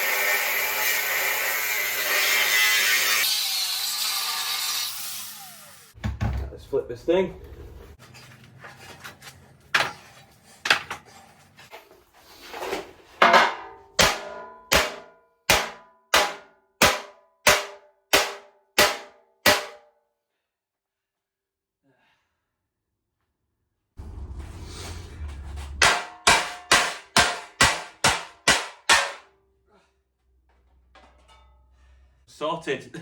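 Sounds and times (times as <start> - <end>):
hammer striking steel frame: 13.2 - 19.9, 24.4 - 29.4.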